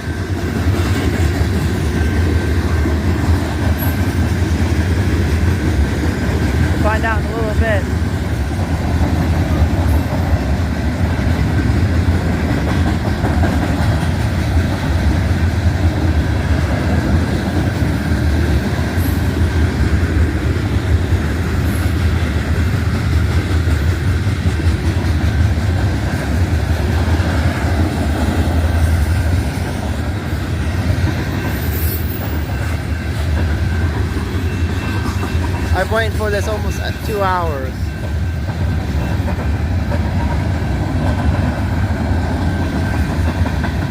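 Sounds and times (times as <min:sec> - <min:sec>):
freight train wheels rolling on rails: 0:00.0 - 0:43.9.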